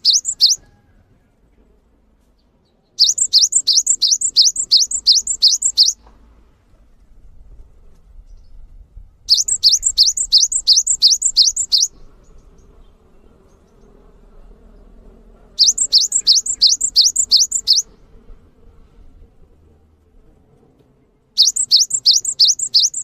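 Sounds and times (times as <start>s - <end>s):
songbird high chirps: 0.0s - 0.6s, 2.9s - 6.0s, 9.3s - 14.0s, 15.6s - 18.0s, 21.4s - 23.0s.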